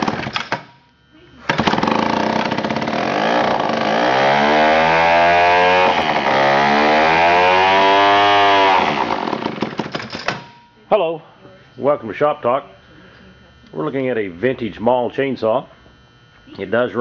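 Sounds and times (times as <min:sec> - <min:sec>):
two-stroke chainsaw revving: 0:01.5 - 0:09.8.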